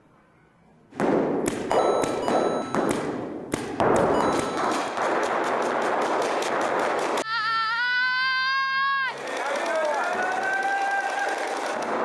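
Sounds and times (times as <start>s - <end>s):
paintball marker firing: 1.0s - 7.2s, 9.1s - 12.0s.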